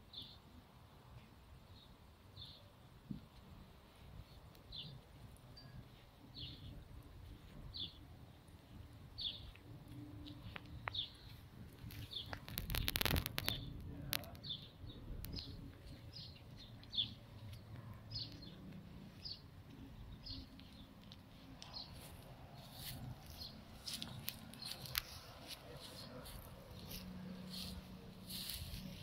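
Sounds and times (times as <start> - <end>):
bird chirping: 4.2 - 29.0
rustling noise with clicks: 9.5 - 14.6, 20.5 - 29.0.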